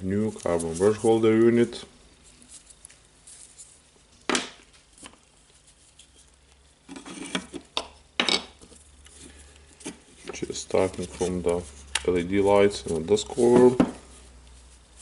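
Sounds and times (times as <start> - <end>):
parts knocking on workbench: 13.5 - 14.0.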